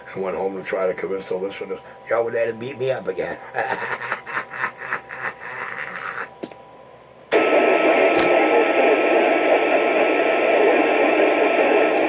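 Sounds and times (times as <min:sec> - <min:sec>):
radio static hiss: 0:00.0 - 0:04.4, 0:07.3 - 0:12.0.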